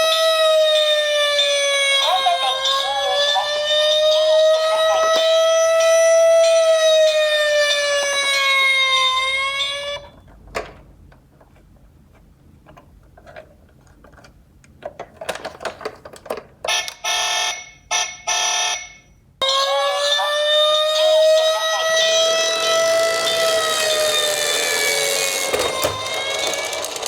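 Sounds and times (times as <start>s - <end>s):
toy siren wailing: 0.0s - 10.1s, 19.4s - 27.0s.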